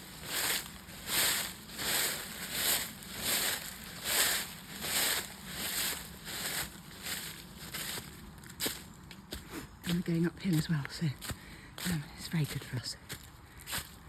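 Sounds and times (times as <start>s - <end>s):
footsteps crunching dry leaves: 0.0s - 14.0s.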